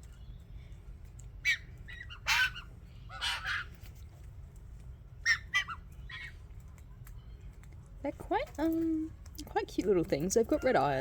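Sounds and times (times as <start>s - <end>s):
birds calling: 0.0s - 4.2s, 4.8s - 7.6s.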